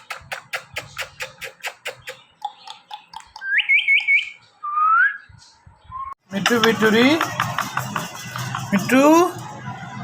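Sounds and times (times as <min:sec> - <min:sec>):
parrot whistled chirps: 0:03.4 - 0:05.2.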